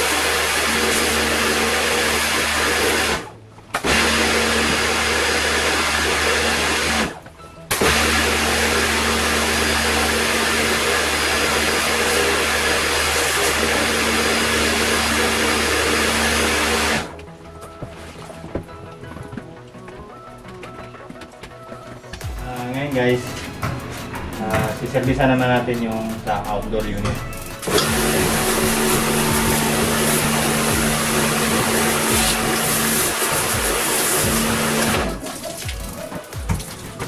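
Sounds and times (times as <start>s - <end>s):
pressure washer spraying: 0.0s - 17.1s, 27.6s - 37.0s
low motor hum: 27.2s - 35.3s.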